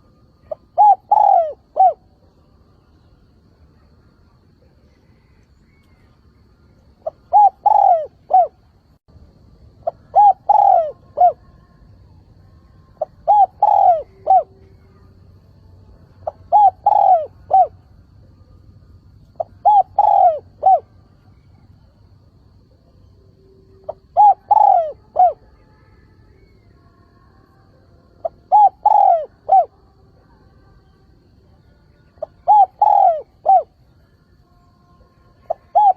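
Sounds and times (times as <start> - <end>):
dove cooing: 0.0 - 2.2, 7.0 - 8.6, 9.8 - 11.6, 13.0 - 15.2, 16.1 - 18.0, 19.3 - 21.0, 23.7 - 25.6, 28.2 - 29.8, 32.2 - 33.8, 35.4 - 35.9.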